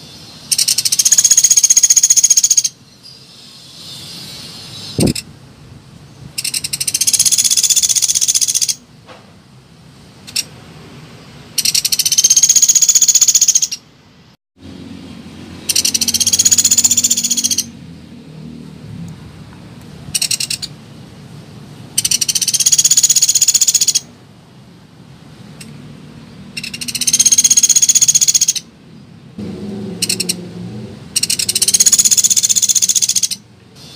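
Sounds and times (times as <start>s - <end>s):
woodpecker rattling trills: 0.5s - 2.8s, 6.4s - 8.8s, 11.6s - 13.8s, 15.6s - 17.7s, 20.2s - 20.7s, 22.0s - 24.1s, 26.6s - 28.7s, 30.0s - 30.4s, 31.2s - 33.4s.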